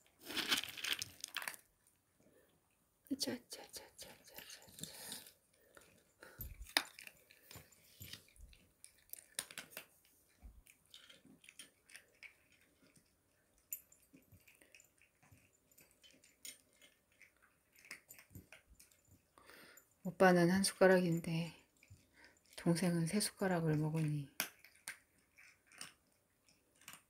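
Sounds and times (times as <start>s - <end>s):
kitten chewing food: 4.1s - 19.7s, 24.4s - 27.0s.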